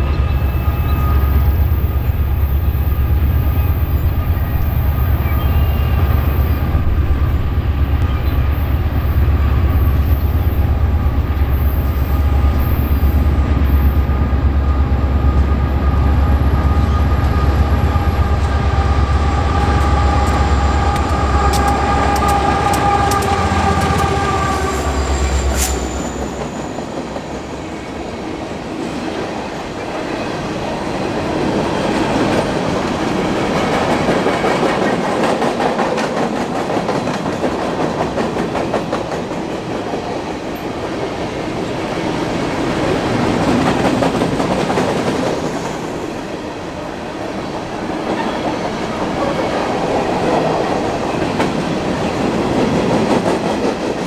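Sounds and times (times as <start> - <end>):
diesel locomotive engine rumble: 0.0 - 30.6
train wheels clicking: 17.8 - 27.5.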